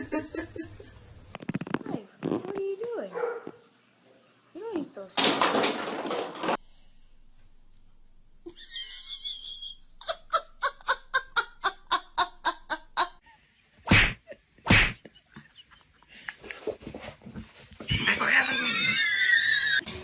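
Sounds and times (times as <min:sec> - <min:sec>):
laughter in short bursts: 0:08.5 - 0:13.2.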